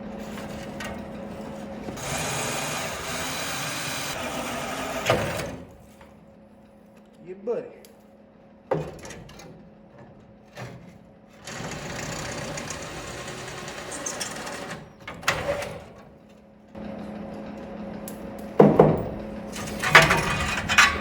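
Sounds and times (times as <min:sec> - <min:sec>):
power tool motor running: 0:02.0 - 0:05.6, 0:11.4 - 0:14.9.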